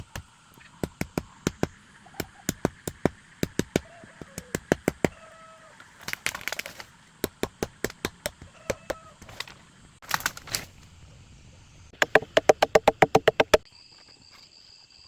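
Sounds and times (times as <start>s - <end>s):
wood crackling: 6.0s - 8.5s, 12.0s - 13.6s
blade chopping into wood: 12.0s - 13.6s.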